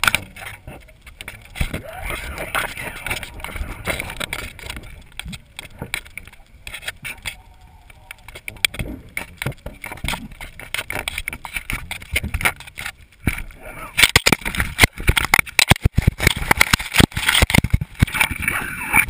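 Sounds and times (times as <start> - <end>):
camera knocks and rattles: 8.3 - 13.4, 14.0 - 18.4.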